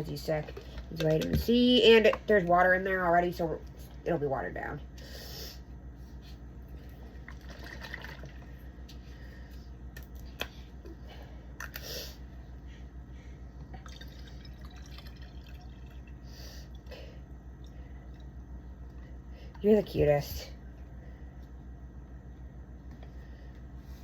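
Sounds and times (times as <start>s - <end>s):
steady low hum: 0.0s - 24.0s
juice trickling into cup: 7.1s - 8.8s, 13.7s - 16.9s.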